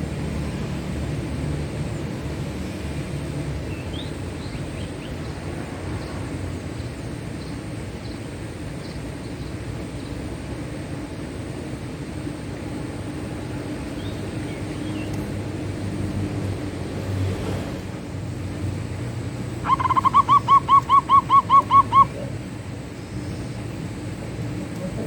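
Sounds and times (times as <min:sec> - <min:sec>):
dove cooing: 0:19.5 - 0:22.8.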